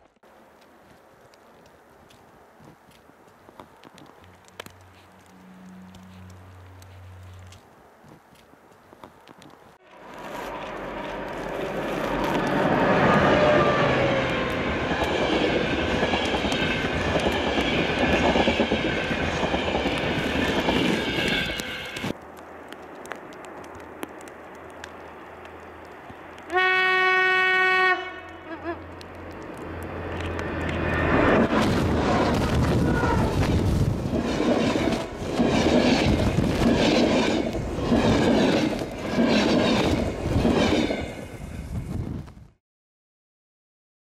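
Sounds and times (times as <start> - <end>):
train wheels rushing on rails: 9.9 - 26.8, 28.9 - 42.1
train horn blast: 11.2 - 14.6, 26.5 - 28.8.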